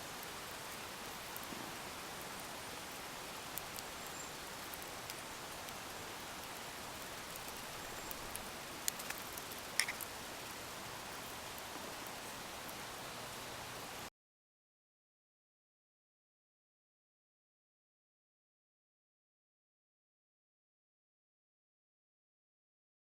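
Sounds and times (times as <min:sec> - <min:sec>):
fire crackles and pops: 0:00.0 - 0:12.8.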